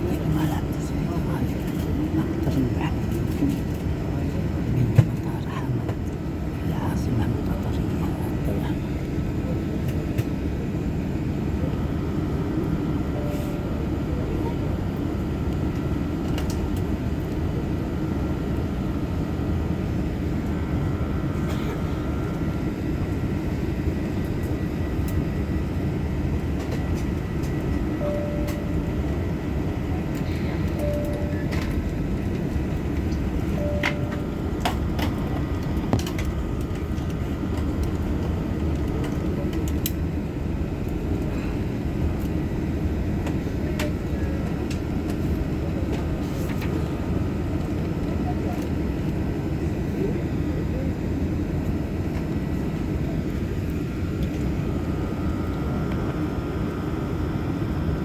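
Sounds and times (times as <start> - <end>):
jet airliner takeoff rumble: 0.0 - 58.0
short faint beeps: 13.1 - 13.7, 28.0 - 29.1, 30.6 - 31.8, 33.5 - 34.5.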